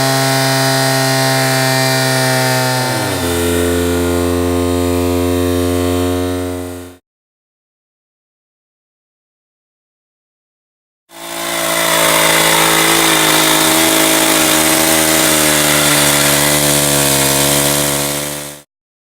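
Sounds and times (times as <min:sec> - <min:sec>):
chainsaw engine running: 0:00.0 - 0:07.0, 0:11.1 - 0:18.7.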